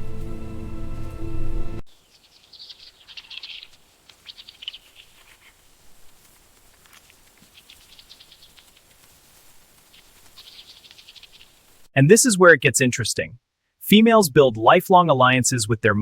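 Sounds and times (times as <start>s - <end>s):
high chirping trills: 0.0s - 5.3s, 10.4s - 11.6s.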